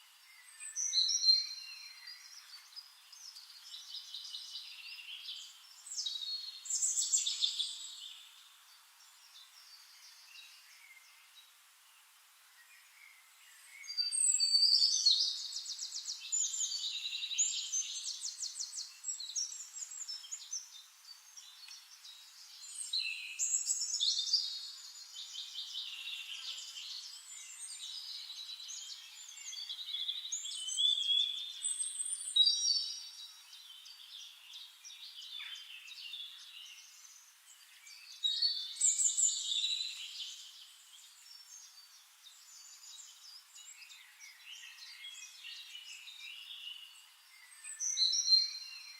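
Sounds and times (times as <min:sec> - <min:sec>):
songbirds singing: 0:00.0 - 0:48.9.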